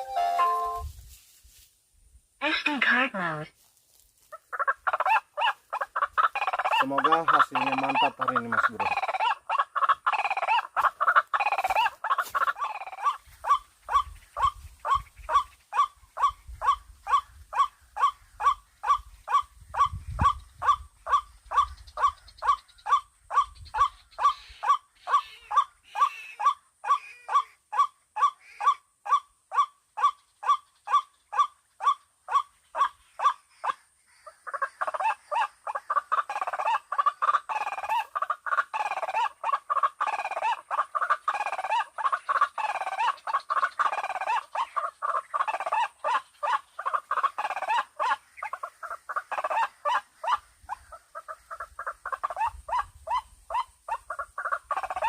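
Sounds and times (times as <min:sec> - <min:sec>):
waterhen calls from speaker: 0:04.5 - 0:17.3.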